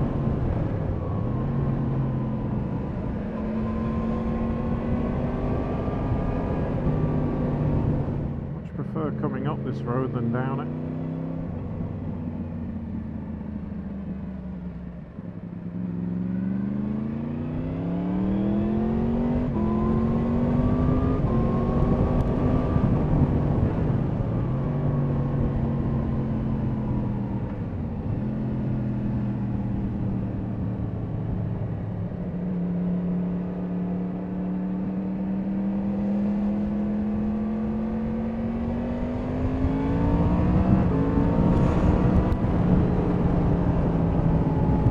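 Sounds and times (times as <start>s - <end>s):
motorcycle engine accelerating: 0.0s - 44.9s
wind rush: 39.0s - 44.9s.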